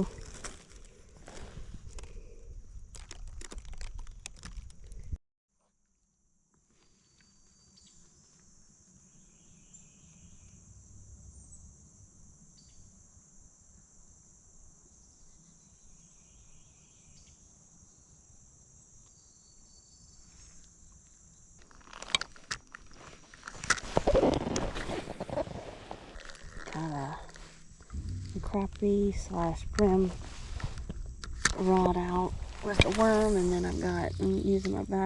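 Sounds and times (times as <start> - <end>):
high-pitched insect chorus: 26.3 - 35.0.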